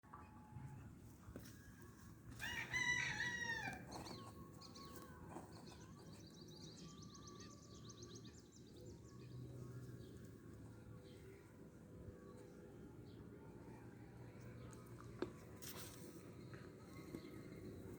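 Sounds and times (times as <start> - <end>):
rooster crowing: 2.4 - 4.0.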